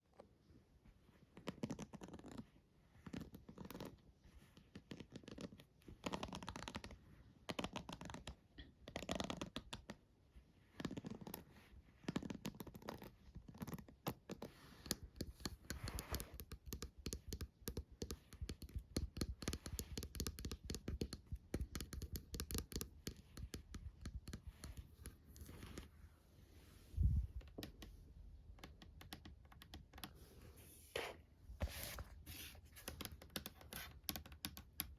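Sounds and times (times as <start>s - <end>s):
close scratching strokes: 24.4s - 27.2s, 30.2s - 33.0s.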